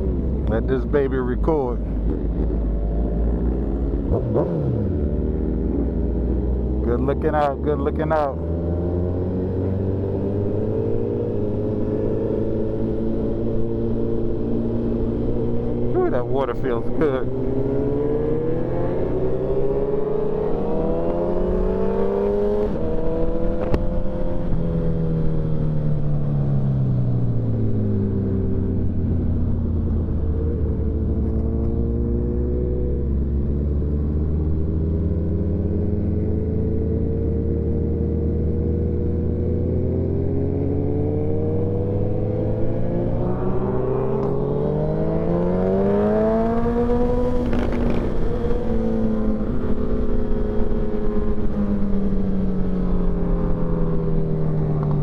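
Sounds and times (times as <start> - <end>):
motorcycle engine running: 1.4 - 7.6, 45.6 - 55.0.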